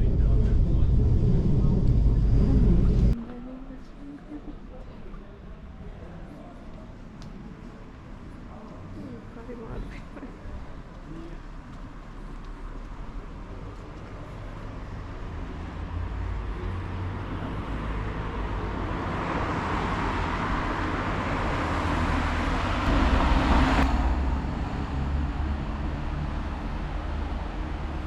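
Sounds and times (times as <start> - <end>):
vehicle engine rumble passing: 0.0 - 3.4, 10.2 - 28.0.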